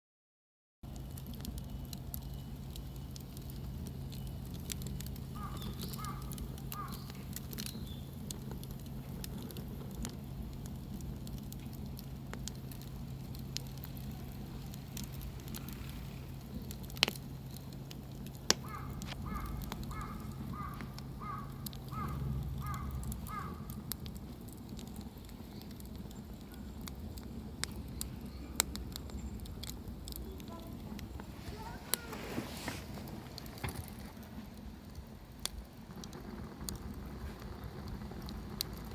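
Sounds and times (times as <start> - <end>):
wood fire crackling and popping: 0.8 - 38.9
low hum: 0.9 - 38.9
crow cawing: 5.4 - 7.2, 18.6 - 23.8.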